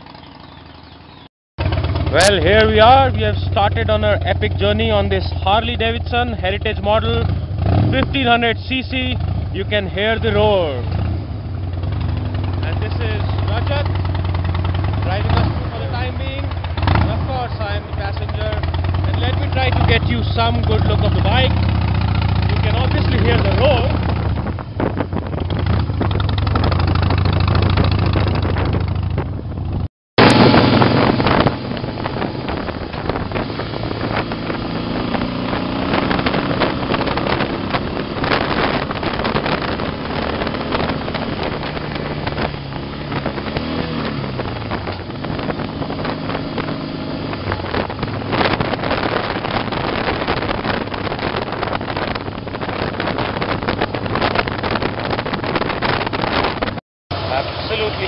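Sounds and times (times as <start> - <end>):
wind buffeting microphone: 0.0 - 57.9
motorcycle engine running: 0.0 - 58.0.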